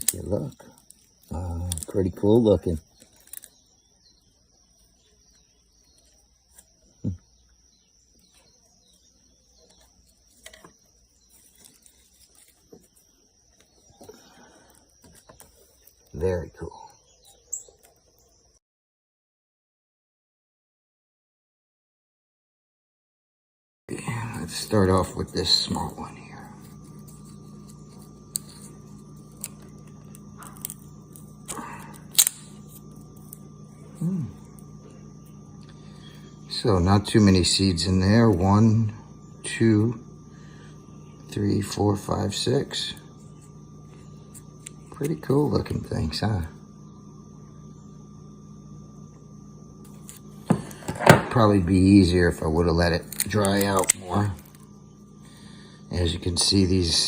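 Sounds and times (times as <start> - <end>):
seed pod clicking open: 0.0 - 2.0, 2.8 - 3.6, 29.3 - 32.6, 53.0 - 54.6
faint high whine: 0.0 - 18.6, 23.9 - 57.0
faint steady hum: 0.0 - 18.6, 23.9 - 57.0.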